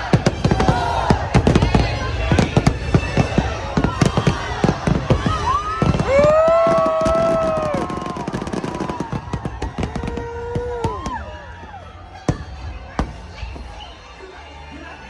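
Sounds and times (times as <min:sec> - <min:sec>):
fireworks crackling and popping: 0:00.0 - 0:14.0
fireworks whistling: 0:00.0 - 0:14.2.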